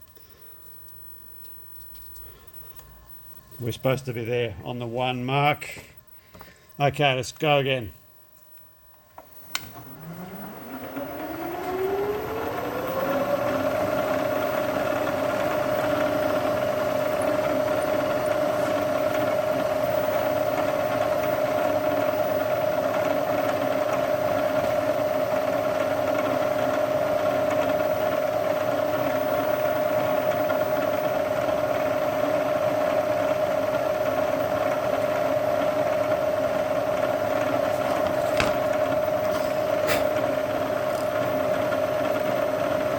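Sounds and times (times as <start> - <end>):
electric spindle motor whine: 9.2 - 42.9.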